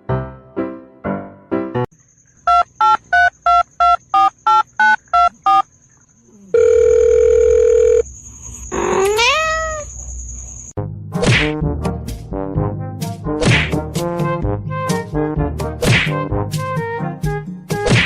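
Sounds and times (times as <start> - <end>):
telephone keypad tones: 2.5 - 5.6
steady telephone tone: 6.5 - 8.1
cat meowing: 8.8 - 9.9.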